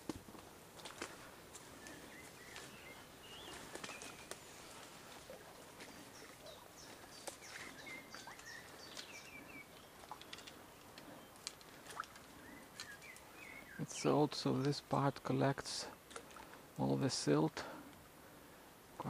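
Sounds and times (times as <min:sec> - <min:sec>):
birds chirping and whistling: 0:01.7 - 0:04.8, 0:05.8 - 0:11.4, 0:12.3 - 0:14.8
faint clicks: 0:10.0 - 0:13.3.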